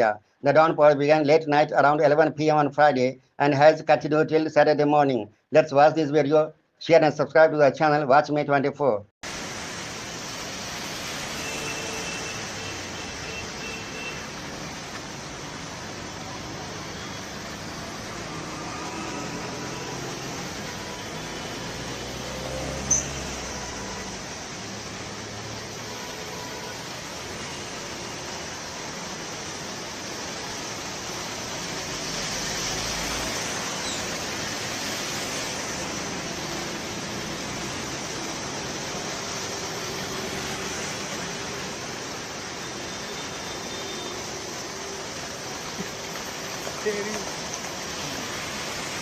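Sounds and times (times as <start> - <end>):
heavy rain hissing: 9.2 - 49.0
faint passing traffic hum: 9.3 - 49.0.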